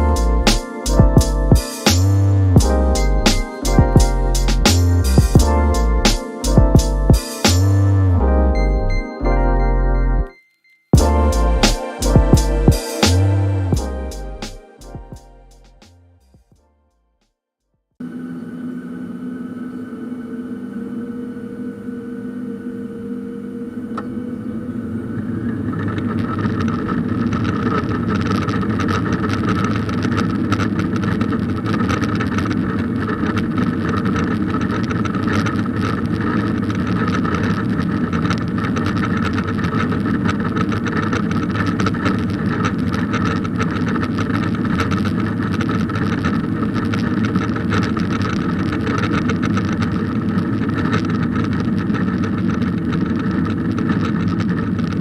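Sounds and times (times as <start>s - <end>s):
jet engines whining and rumbling: 18.0s - 55.0s.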